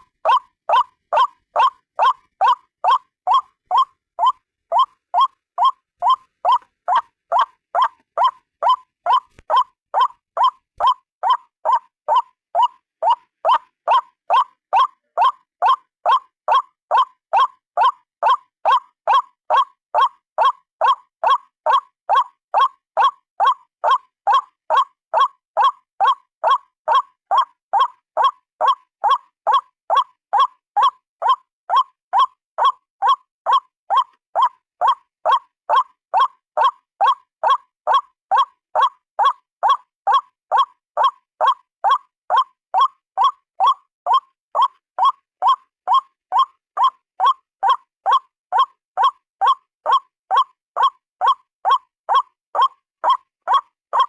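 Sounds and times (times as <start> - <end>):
bird call repeating: 0.2 - 15.4.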